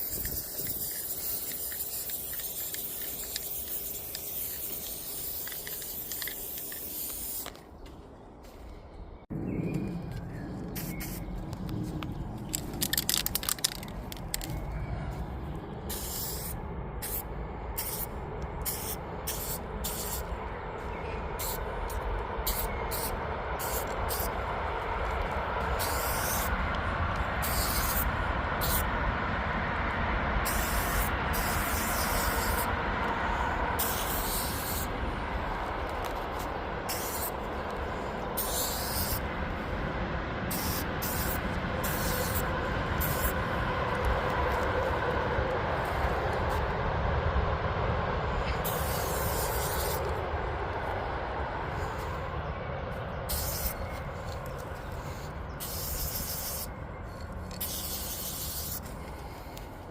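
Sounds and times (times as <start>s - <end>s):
spray can hissing: 0.0s - 7.6s, 12.6s - 14.5s, 15.9s - 17.2s, 17.8s - 20.3s, 21.4s - 21.6s, 22.4s - 24.3s, 25.7s - 26.5s, 27.4s - 28.8s, 30.4s - 32.7s, 33.8s - 34.9s, 36.9s - 37.4s, 38.4s - 39.2s, 40.5s - 42.4s, 48.6s - 50.0s, 53.3s - 53.8s, 55.6s - 56.7s, 57.5s - 58.9s
low rumble: 8.0s - 55.6s.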